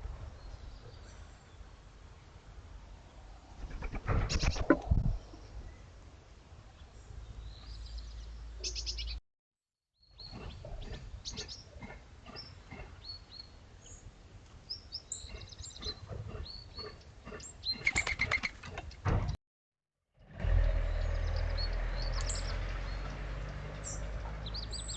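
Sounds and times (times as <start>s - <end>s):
small birds chirping: 6.7s - 9.2s, 10.0s - 19.0s, 20.9s - 24.9s
low outdoor rumble: 20.2s - 24.9s.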